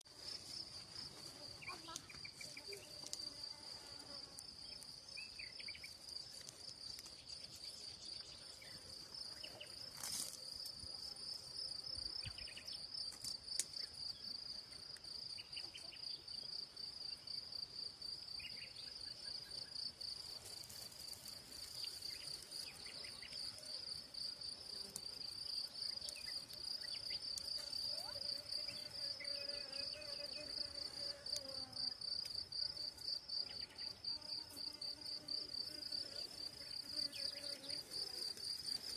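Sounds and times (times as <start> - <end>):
insects trilling: 0.2 - 38.9.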